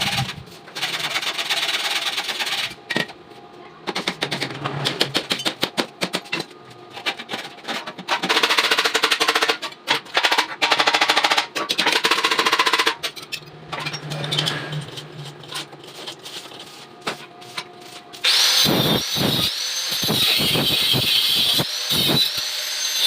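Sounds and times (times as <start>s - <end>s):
electric welding crackle: 18.2s - 23.0s.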